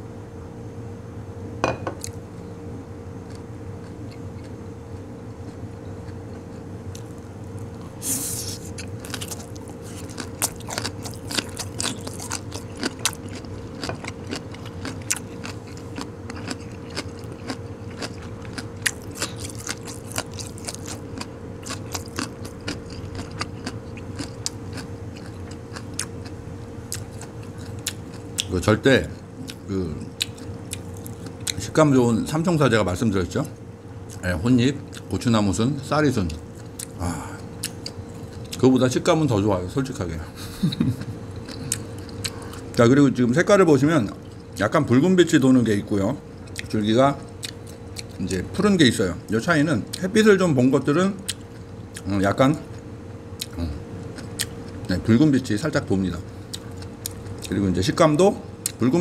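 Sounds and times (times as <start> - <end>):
chewing crunches: 3.2 - 31.8, 34.0 - 35.2, 36.2 - 38.7, 40.8 - 42.8, 46.3 - 48.6, 51.2 - 55.1, 56.2 - 57.6, 58.6 - 58.9.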